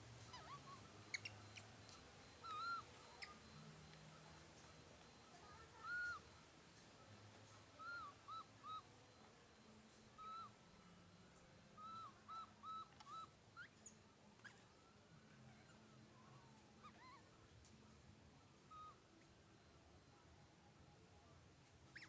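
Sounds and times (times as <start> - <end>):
young monkey calling: 0.3 - 1.7, 2.4 - 3.5, 5.8 - 6.3, 7.8 - 8.9, 10.2 - 10.6, 11.8 - 14.6, 18.7 - 19.0.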